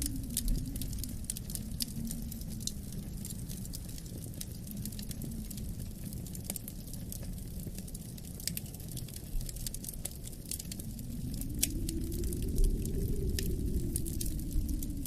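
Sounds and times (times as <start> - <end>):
low rumble of wind: 0.0 - 15.0
wood fire crackling and popping: 0.0 - 15.0.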